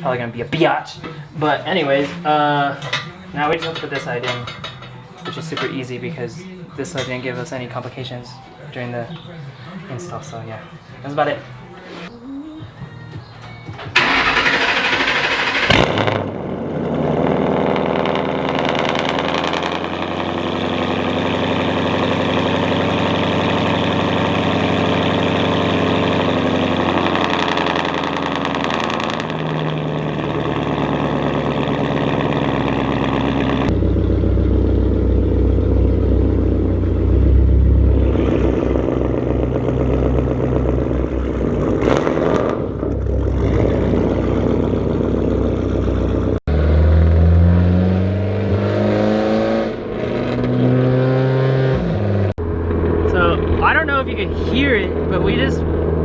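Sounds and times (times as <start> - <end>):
car engine loud idle: 13.9 - 46.4.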